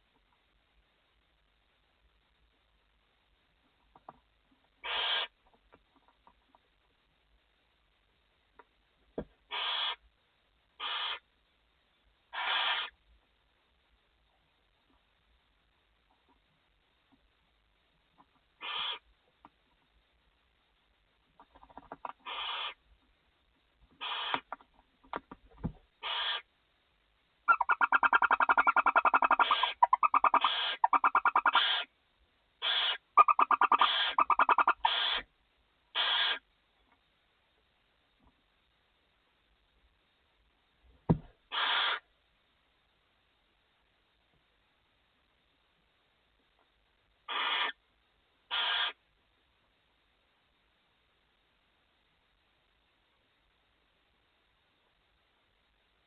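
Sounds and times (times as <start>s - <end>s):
barn owl hissing calls: 4.8s - 5.4s, 9.5s - 10.0s, 10.8s - 11.3s, 12.3s - 13.0s, 18.6s - 19.1s, 21.4s - 22.8s, 24.0s - 24.6s, 26.0s - 26.5s, 27.5s - 31.9s, 32.6s - 35.3s, 35.9s - 36.5s, 41.5s - 42.1s, 47.2s - 47.8s, 48.5s - 49.0s
short knock: 41.1s - 41.3s.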